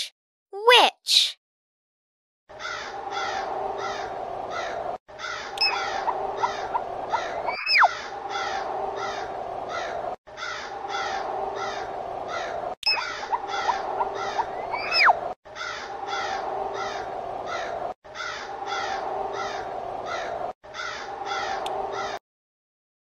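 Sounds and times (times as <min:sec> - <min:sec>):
crows cawing: 0:02.5 - 0:22.2
steady low hum: 0:02.5 - 0:22.2
whistling pitch glides: 0:05.6 - 0:08.0, 0:12.8 - 0:15.2.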